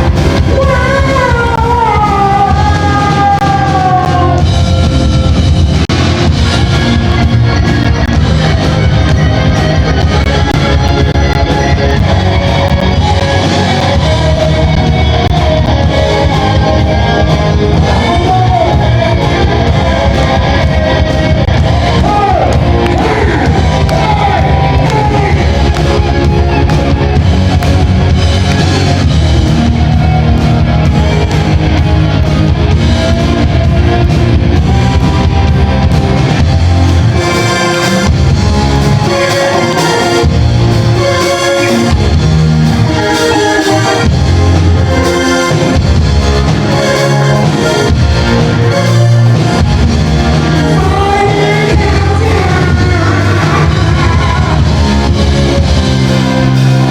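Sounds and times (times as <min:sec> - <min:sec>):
rock band playing: 0:00.0 - 0:56.9
person singing: 0:00.4 - 0:04.5, 0:17.6 - 0:25.9, 0:50.5 - 0:55.2.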